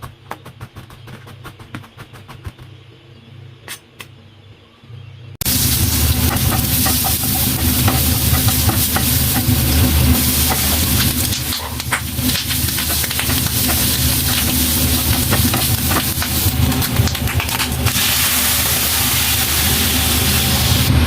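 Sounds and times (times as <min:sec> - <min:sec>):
food sizzling in hot pan: 0:05.4 - 0:21.0.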